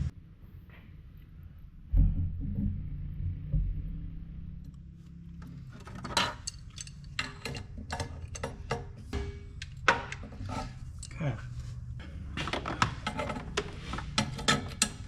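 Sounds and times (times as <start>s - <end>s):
clicks and knocks of fittings: 5.4s - 11.2s.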